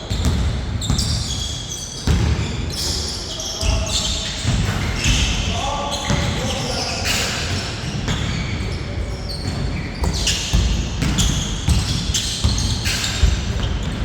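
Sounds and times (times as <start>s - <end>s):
basketball bouncing on court: 0.0s - 2.9s, 3.6s - 6.9s, 7.5s - 14.0s.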